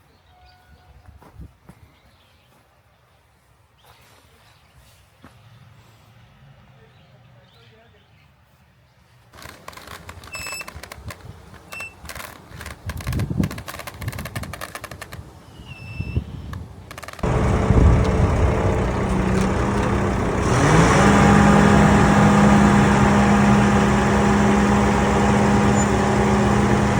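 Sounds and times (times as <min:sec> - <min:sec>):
knocks and scrapes: 0:09.4 - 0:15.2
heavy machine engine running: 0:17.1 - 0:26.9.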